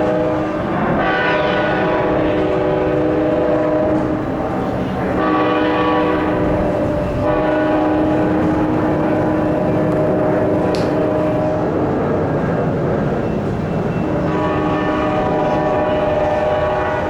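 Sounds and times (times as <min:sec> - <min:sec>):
locomotive air horn chord: 0:00.0 - 0:12.0, 0:13.5 - 0:17.0.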